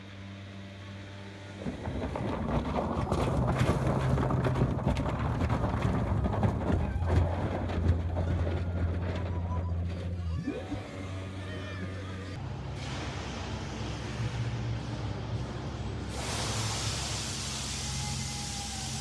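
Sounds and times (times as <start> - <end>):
boat engine running: 1.1 - 12.4.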